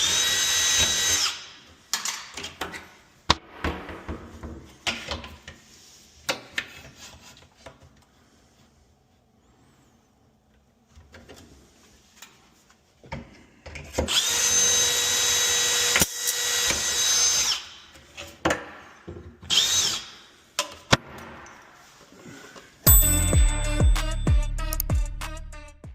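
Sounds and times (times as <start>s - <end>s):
power drill whining: 0.0s - 1.7s, 14.0s - 17.9s, 19.4s - 20.3s.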